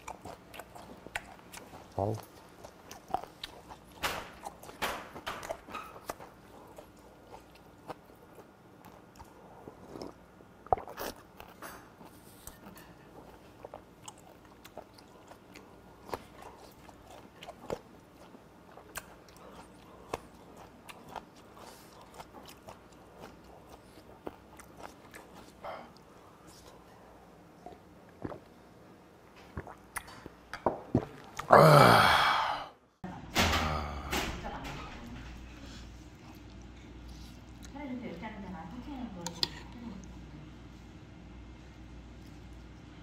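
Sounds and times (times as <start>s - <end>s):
person chewing wetly: 0.0s - 31.6s, 36.0s - 38.6s.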